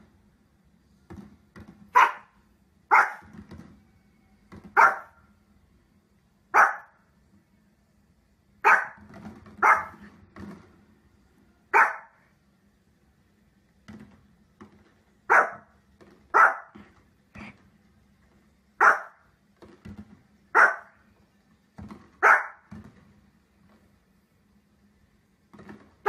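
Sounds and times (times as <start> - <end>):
small dog barking: 1.9 - 3.3, 4.7 - 5.2, 6.5 - 7.0, 8.6 - 9.0, 9.6 - 10.0, 11.7 - 12.2, 15.3 - 15.7, 16.3 - 16.8, 18.8 - 19.2, 20.5 - 21.0, 22.2 - 22.7.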